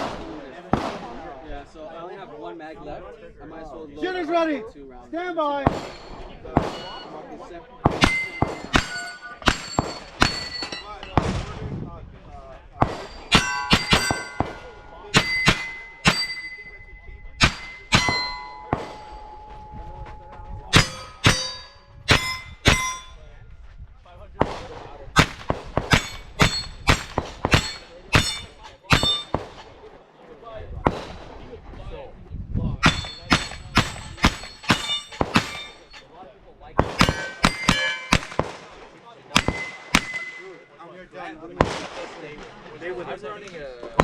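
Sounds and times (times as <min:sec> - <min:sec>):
pistol shots: 0:05.7 - 0:07.1, 0:07.9 - 0:11.4, 0:12.8 - 0:16.7, 0:17.4 - 0:19.2, 0:24.4 - 0:29.7, 0:36.8 - 0:38.8, 0:39.4 - 0:40.6
steel plate ringing clang: 0:05.8 - 0:07.2, 0:08.0 - 0:11.2, 0:13.0 - 0:23.3, 0:25.2 - 0:29.6, 0:32.8 - 0:36.1, 0:37.0 - 0:38.4, 0:39.4 - 0:40.7.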